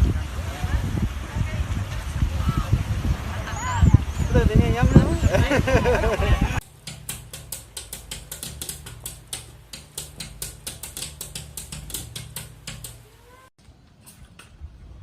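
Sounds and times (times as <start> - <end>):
rapid sharp clicking: 6.6 - 13.1.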